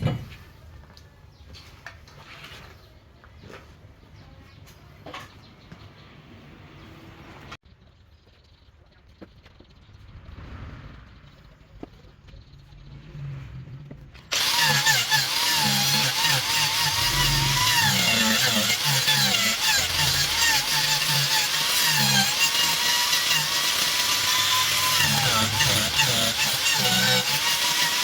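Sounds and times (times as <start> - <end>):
power tool cutting wood: 14.3 - 28.0.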